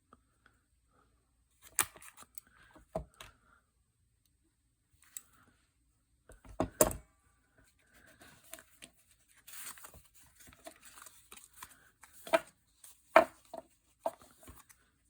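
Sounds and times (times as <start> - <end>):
paper handling: 8.0 - 14.8.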